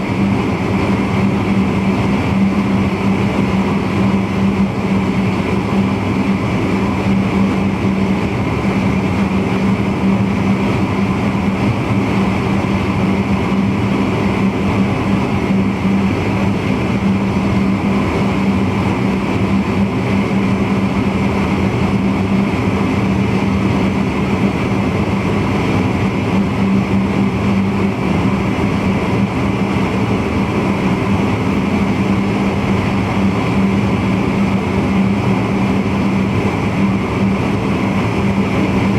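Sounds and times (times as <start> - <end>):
electric train running rumble: 0.0 - 38.9.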